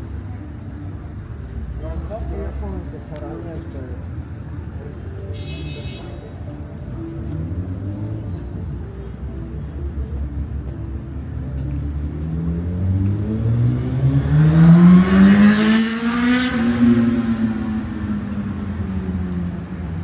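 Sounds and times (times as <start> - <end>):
car engine accelerating past: 11.7 - 20.0.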